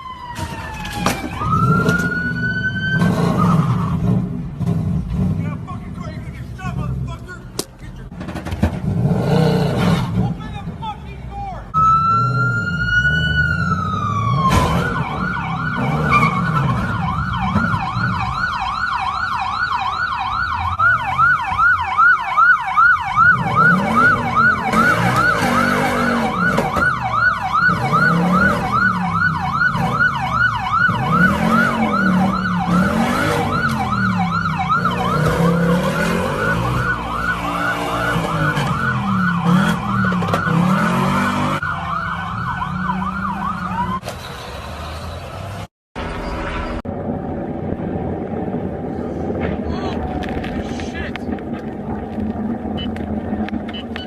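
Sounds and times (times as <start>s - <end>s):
emergency siren wail and yelp: 0.0s - 4.2s, 11.7s - 44.1s
low rising and falling siren tone: 0.0s - 4.5s, 11.7s - 44.0s, 46.1s - 54.0s.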